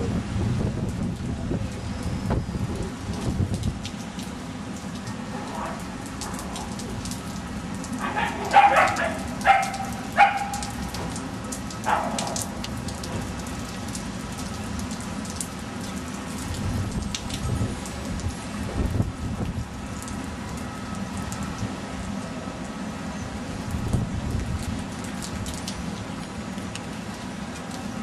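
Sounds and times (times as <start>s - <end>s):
puppy yelping: 8.0s - 10.7s.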